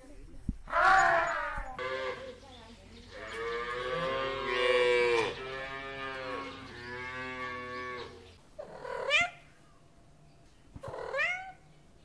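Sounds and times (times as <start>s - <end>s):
cow mooing: 3.2s - 8.2s.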